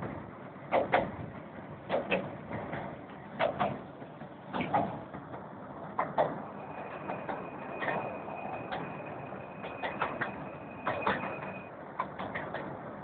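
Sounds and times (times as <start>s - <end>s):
miniature train rumbling: 0.0s - 13.0s.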